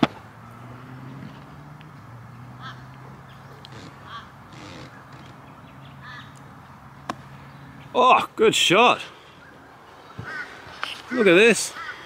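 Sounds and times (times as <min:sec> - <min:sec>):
short bird calls: 0:02.6 - 0:06.4, 0:09.0 - 0:12.0.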